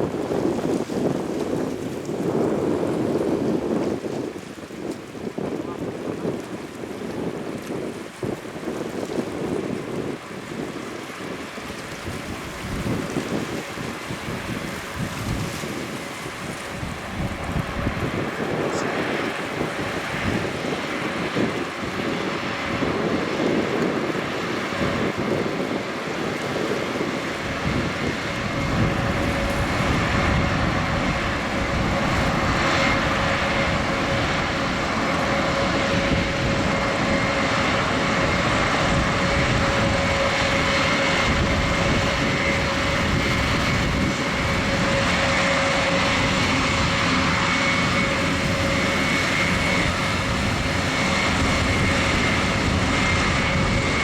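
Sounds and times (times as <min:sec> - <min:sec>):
propeller drone: 0:00.0 - 0:54.0
high engine whine: 0:09.0 - 0:54.0.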